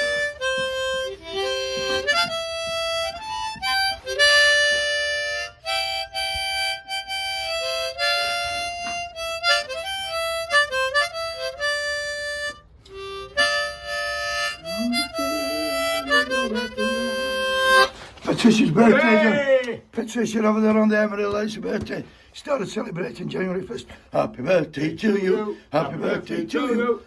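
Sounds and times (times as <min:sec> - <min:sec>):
harmonica melody: 0:00.0 - 0:18.1.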